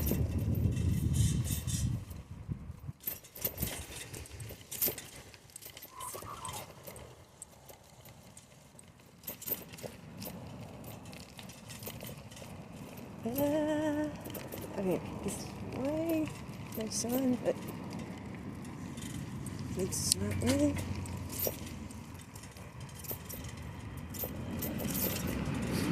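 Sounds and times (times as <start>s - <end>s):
bicycle squeak: 0.0s - 2.2s, 3.1s - 7.2s
bicycle clicking and rattling: 0.0s - 25.9s.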